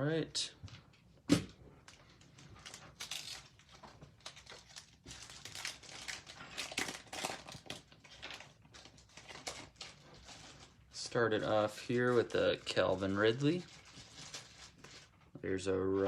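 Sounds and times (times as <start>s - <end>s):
card pack wrapper crinkling: 1.9s - 10.8s, 11.4s - 15.1s.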